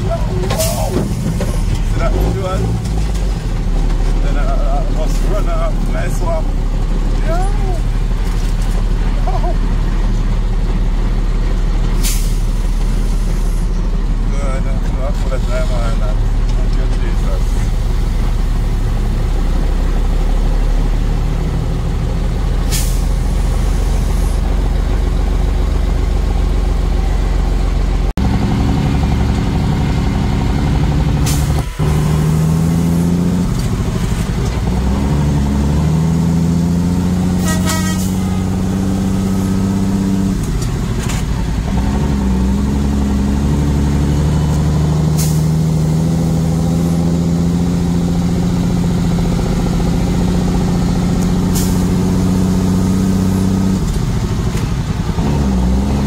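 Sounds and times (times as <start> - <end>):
truck engine with gear changes: 0.0 - 56.0
short sharp hisses: 12.0 - 12.5, 22.7 - 23.1.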